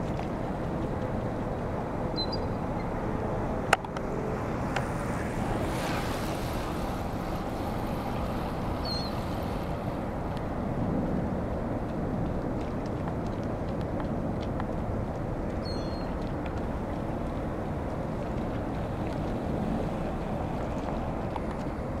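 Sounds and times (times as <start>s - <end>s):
traffic-like rumble: 0.0s - 22.0s
wind: 0.0s - 22.0s
faint high bird chirps: 2.2s - 2.6s.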